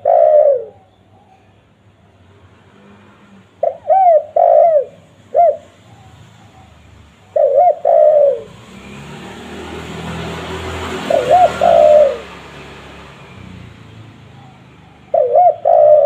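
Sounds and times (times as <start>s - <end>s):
dove cooing: 0.0s - 1.4s, 3.6s - 8.7s, 10.8s - 12.6s, 13.9s - 16.0s.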